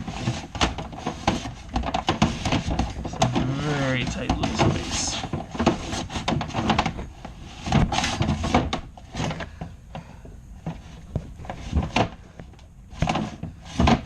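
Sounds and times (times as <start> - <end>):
rods scraping in duct: 0.0 - 14.0.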